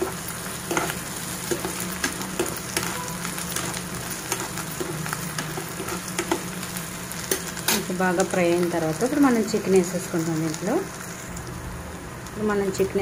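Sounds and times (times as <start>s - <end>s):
spatula stirring in pan: 0.0s - 7.7s
onions sizzling in hot oil: 0.0s - 13.0s.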